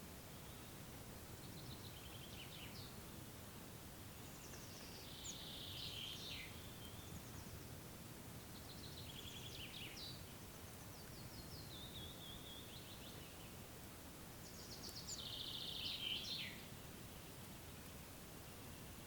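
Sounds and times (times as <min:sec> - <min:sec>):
faint steady hiss: 0:00.0 - 0:19.0
songbirds trilling: 0:04.1 - 0:07.8, 0:08.4 - 0:13.7, 0:14.3 - 0:19.0.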